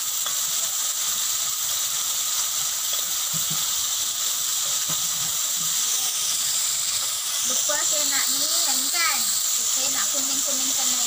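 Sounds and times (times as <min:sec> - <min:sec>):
squid sizzling in hot oil: 0:00.0 - 0:11.0.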